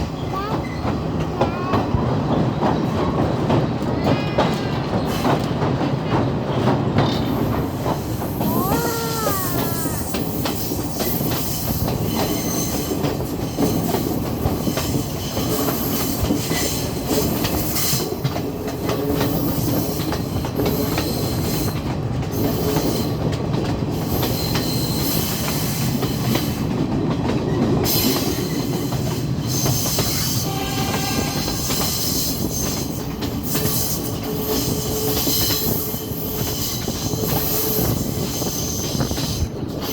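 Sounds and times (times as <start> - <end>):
train wheels rumbling on rails: 0.0 - 39.9
high-pitched train squeals: 7.1 - 16.8, 27.9 - 39.9.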